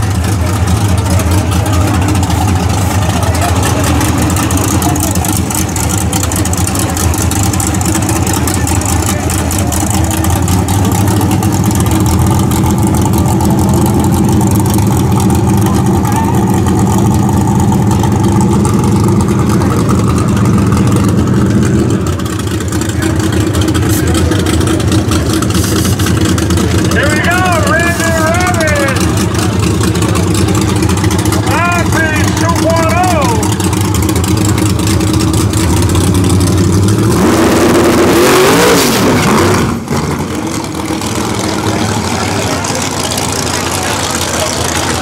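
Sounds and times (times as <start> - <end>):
race car engine idling: 0.0 - 45.0.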